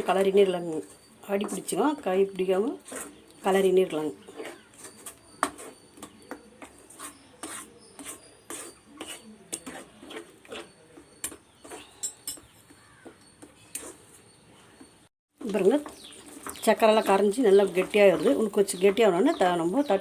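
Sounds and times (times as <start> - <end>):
spoon scraping a pan: 0.0 - 20.0.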